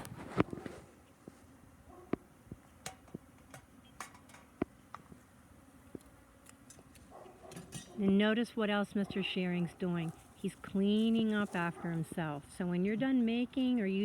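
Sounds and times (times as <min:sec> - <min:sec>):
faint background noise: 0:00.0 - 0:14.0.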